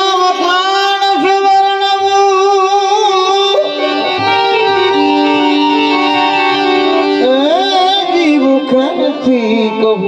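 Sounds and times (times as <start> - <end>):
guitar-like melody instrument: 0.0 - 10.0
instrumental accompaniment: 0.0 - 10.0
sliding pitch instrument: 3.5 - 9.6.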